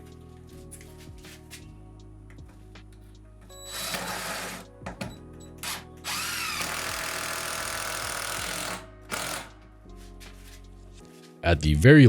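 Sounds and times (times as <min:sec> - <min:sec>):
power drill driving screws: 0:03.6 - 0:09.6.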